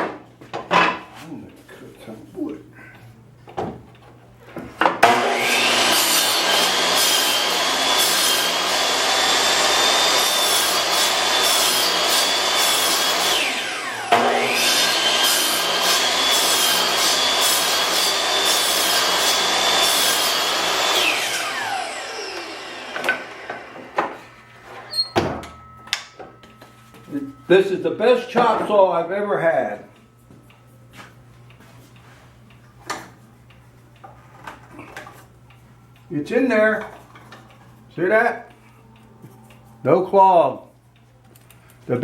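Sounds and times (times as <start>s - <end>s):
chop saw cutting wood: 5.0s - 24.2s.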